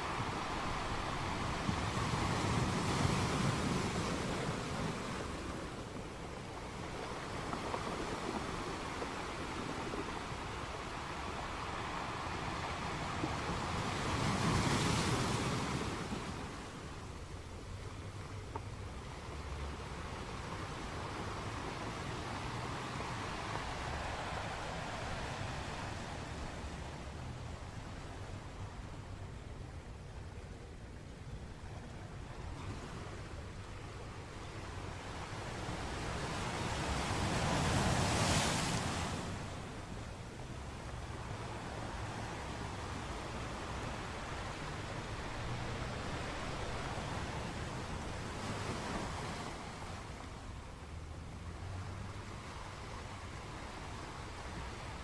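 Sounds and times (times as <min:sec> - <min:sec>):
sea waves breaking: 0:00.0 - 0:55.0
sea wave breaking: 0:20.6 - 0:28.5, 0:35.0 - 0:40.1.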